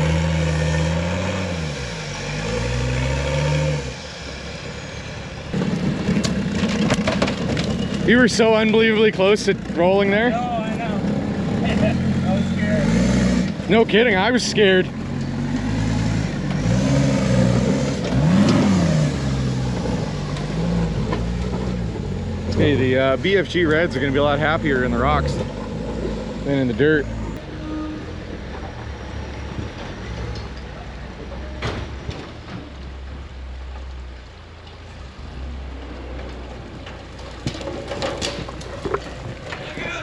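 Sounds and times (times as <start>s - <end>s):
truck engine revving: 0.0s - 32.5s
tyres crackling over rock and dirt: 5.5s - 12.4s, 35.9s - 40.0s.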